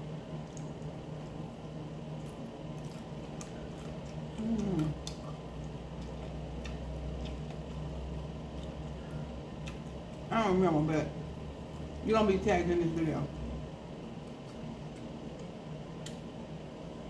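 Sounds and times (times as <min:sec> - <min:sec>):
person chewing: 0:02.1 - 0:10.3
person humming: 0:04.4 - 0:05.0.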